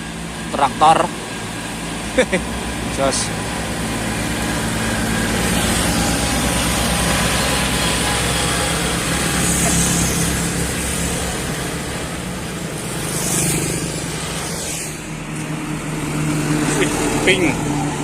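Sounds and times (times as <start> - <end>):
diesel traffic engine drone: 0.0 - 18.0.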